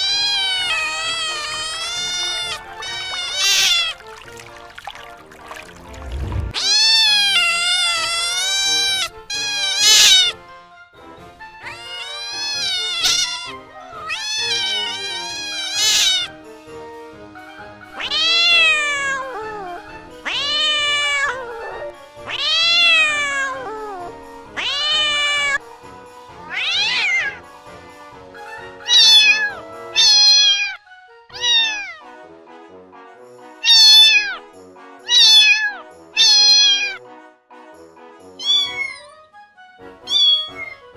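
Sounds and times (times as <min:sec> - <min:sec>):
kittens meowing: 0:00.0 - 0:04.2, 0:06.4 - 0:10.4, 0:11.6 - 0:16.3, 0:17.9 - 0:25.6, 0:26.4 - 0:27.4, 0:28.8 - 0:32.0, 0:33.6 - 0:34.4, 0:35.1 - 0:37.0, 0:38.4 - 0:39.1, 0:40.0 - 0:40.9.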